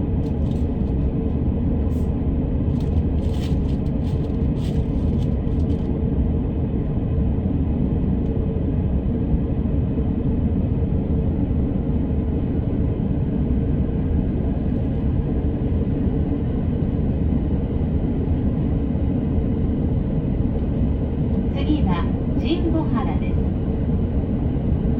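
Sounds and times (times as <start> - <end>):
train wheels rumbling on rails: 0.0 - 6.0
faint constant hum: 0.0 - 24.9.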